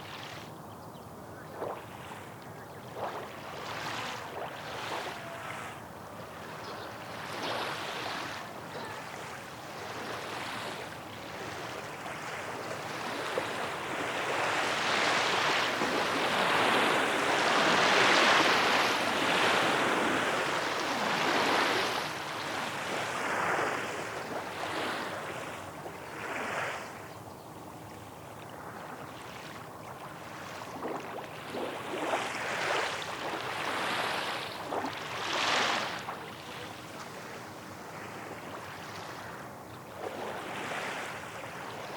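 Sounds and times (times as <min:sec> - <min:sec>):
small waves washing on shore: 0:01.4 - 0:41.9.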